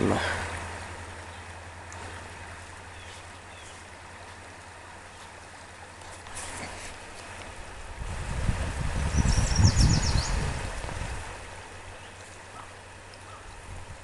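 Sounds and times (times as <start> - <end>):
stream flowing: 0.0 - 14.0.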